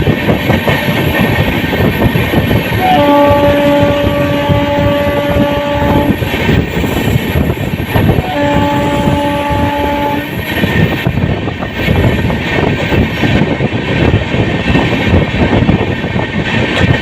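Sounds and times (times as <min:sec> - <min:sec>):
moving train rumble and clatter: 0:00.0 - 0:17.0
locomotive horn blasts: 0:02.8 - 0:06.2, 0:08.2 - 0:10.4.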